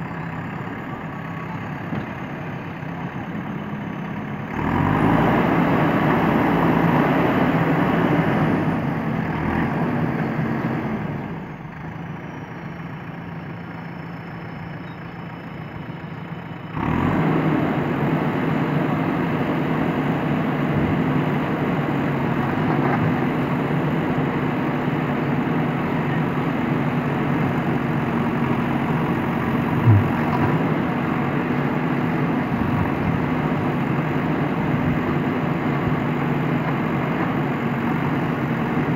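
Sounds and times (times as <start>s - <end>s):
diesel engine running: 0.0s - 38.9s
short low knock: 29.8s - 30.6s.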